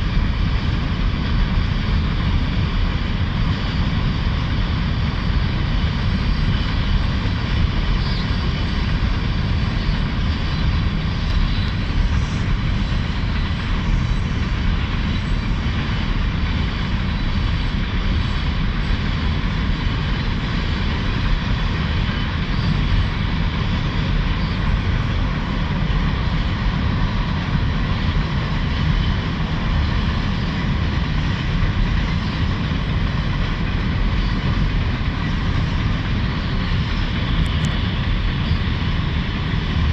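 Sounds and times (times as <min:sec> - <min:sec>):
steel wheels rumbling on rail: 0:00.0 - 0:39.9.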